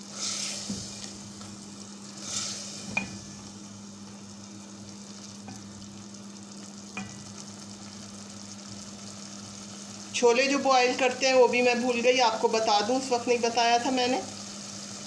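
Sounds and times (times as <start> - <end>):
food sizzling in oil: 0.0 - 15.0
steady low hum: 0.0 - 15.0
spatula tapping a pot: 6.9 - 7.3.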